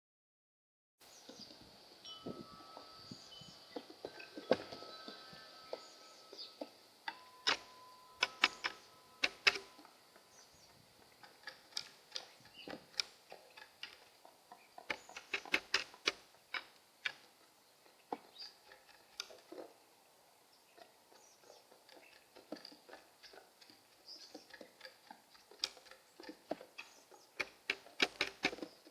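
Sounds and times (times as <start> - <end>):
pigeons clicking and tapping: 7.1 - 9.7, 11.1 - 17.2, 20.8 - 28.9.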